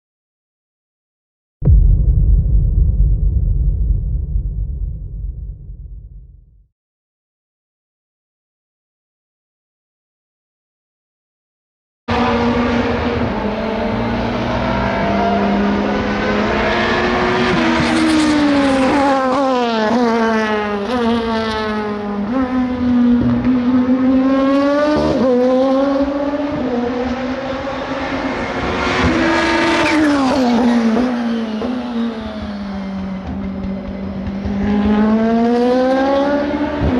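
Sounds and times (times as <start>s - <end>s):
racing car engines passing by: 12.1s - 36.9s.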